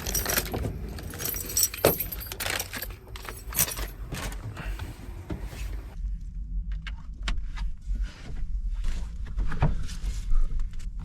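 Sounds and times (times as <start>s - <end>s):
keys jingling: 0.0s - 4.5s.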